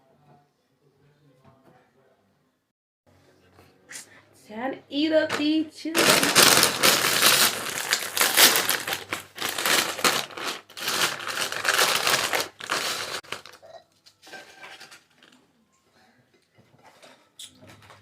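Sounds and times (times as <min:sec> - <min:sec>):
loud crinkling and crunching: 0:05.3 - 0:13.6.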